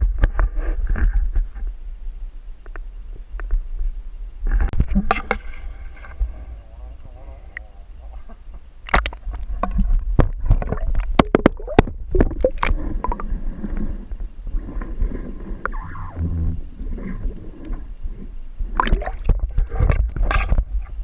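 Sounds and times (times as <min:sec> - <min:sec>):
steady low rumble: 0:00.0 - 0:21.0
gurgling water: 0:04.6 - 0:21.0.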